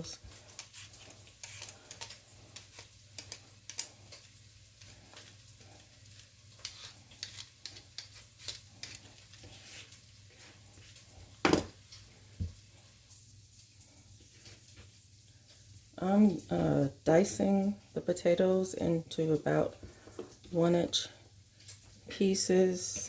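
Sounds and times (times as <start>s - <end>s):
vegetable peeler scraping: 0.0s - 3.9s, 6.5s - 10.0s
sausage sizzling in a pot: 0.0s - 23.0s.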